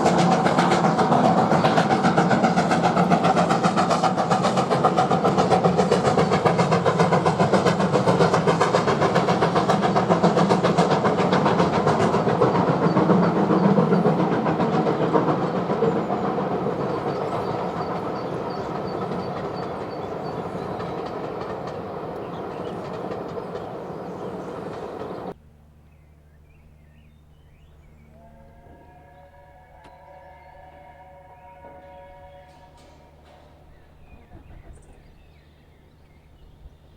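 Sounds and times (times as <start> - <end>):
steam locomotive exhaust beating: 0.0 - 25.4
train running noise: 0.0 - 25.4, 31.5 - 36.9.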